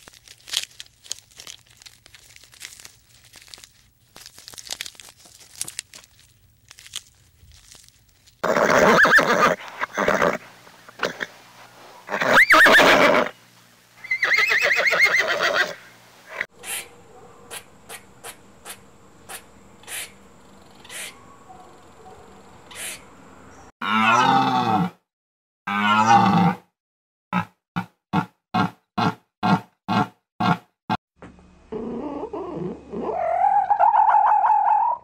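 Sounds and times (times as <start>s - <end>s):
horses neighing: 8.4s - 11.3s, 12.1s - 13.3s, 14.0s - 16.4s
deer calling: 20.8s - 21.3s, 22.7s - 23.1s.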